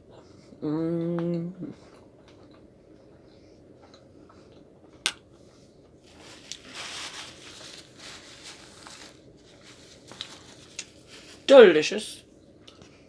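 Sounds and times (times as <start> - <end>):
soft squishy rustling: 5.4 - 11.7.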